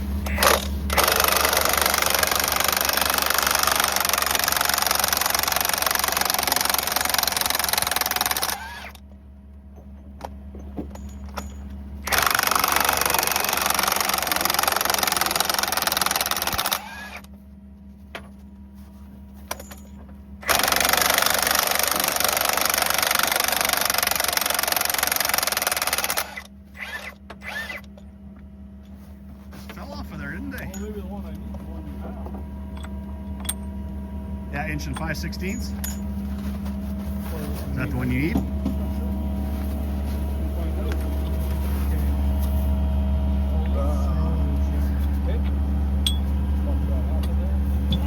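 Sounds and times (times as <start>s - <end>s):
low hum: 26.2s - 48.0s
impact wrench hammering: 46.0s - 46.3s.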